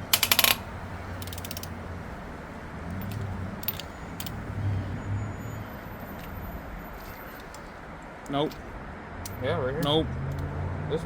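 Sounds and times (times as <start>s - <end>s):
hand ratchet clicking: 0.0s - 1.7s
metallic clicks: 0.0s - 1.8s, 2.9s - 4.4s.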